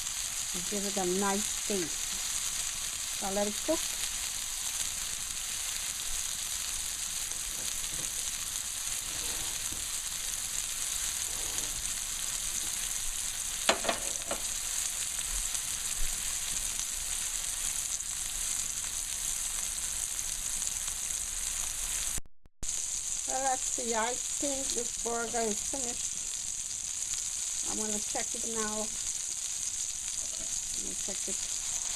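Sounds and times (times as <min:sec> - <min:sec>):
patties sizzling in a pan: 0:00.0 - 0:31.9
sharp pops of frying fat: 0:06.8 - 0:08.6, 0:13.4 - 0:16.8.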